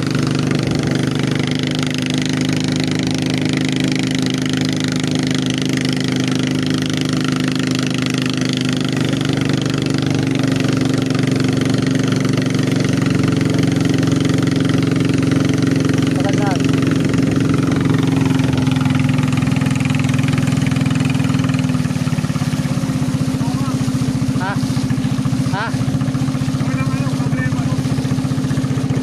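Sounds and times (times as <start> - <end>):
boat engine running: 0.0 - 29.0.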